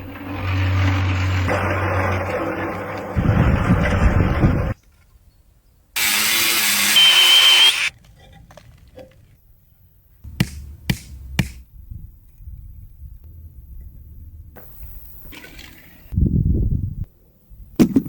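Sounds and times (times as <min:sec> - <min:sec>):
tool rasping with high whine: 0:06.0 - 0:07.9
sharp knocks: 0:10.3 - 0:11.6.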